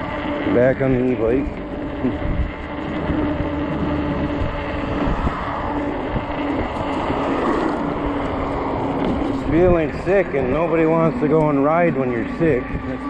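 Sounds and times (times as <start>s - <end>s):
steady electric motor hum: 0.0s - 13.0s
wind buffeting microphone: 0.0s - 13.0s.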